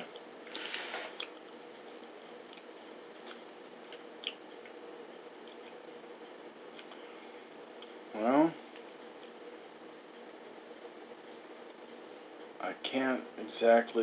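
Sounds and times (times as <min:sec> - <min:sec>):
faint chewing: 0:00.0 - 0:04.8, 0:05.4 - 0:05.8
short breathy hiss: 0:00.6 - 0:01.2.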